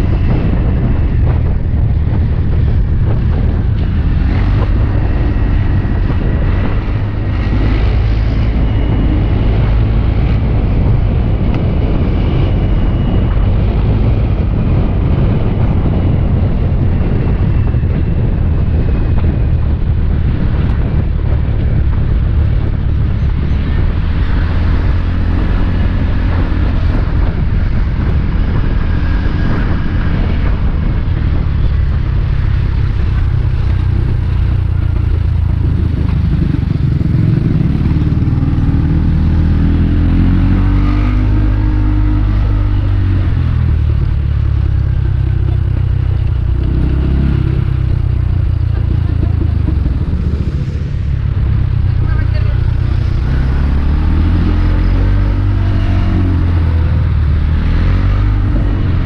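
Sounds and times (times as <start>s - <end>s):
motorbike engine running: 0.0s - 59.0s.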